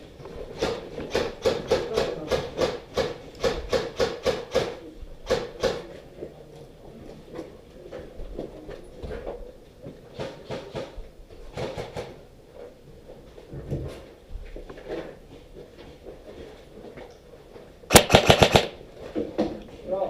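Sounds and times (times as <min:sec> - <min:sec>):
airsoft gun shots: 0:17.9 - 0:18.8.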